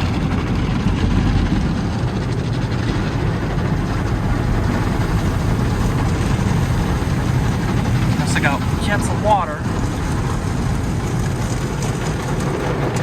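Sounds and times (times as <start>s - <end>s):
spraying water: 1.5s - 13.0s
car wash brushes scrubbing: 3.8s - 13.0s.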